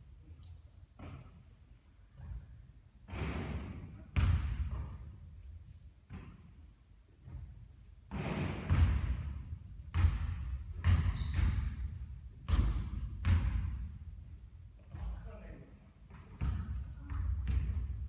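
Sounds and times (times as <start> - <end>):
basketball bouncing on court: 4.1 - 5.0, 7.2 - 14.1, 16.1 - 18.0
shoe squeaks: 9.7 - 11.8, 16.3 - 17.1.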